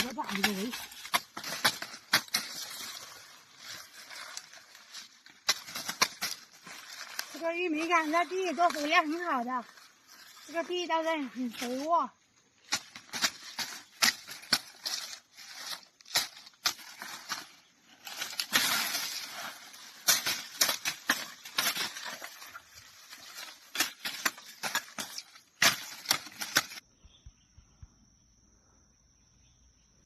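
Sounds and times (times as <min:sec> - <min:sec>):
dry corn stalks being chopped: 0:00.0 - 0:26.8
faint insect trill: 0:06.4 - 0:13.0, 0:25.2 - 0:30.0.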